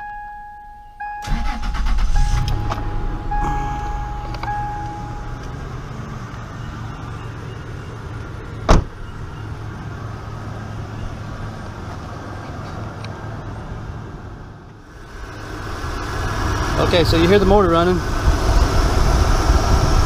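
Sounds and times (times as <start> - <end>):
electronic chime tone: 0.0 - 7.9
pickup engine idling: 1.2 - 20.0
loud thump: 8.7 - 8.9.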